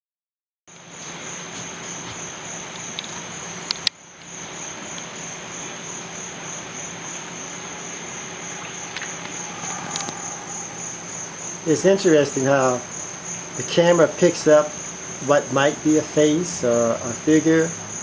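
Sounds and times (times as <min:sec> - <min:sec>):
crickets trilling: 0:00.7 - 0:18.0
even hiss: 0:05.6 - 0:17.2.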